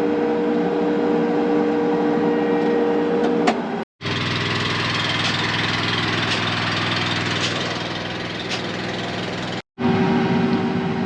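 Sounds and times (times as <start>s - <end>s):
large engine running: 4.0s - 11.0s.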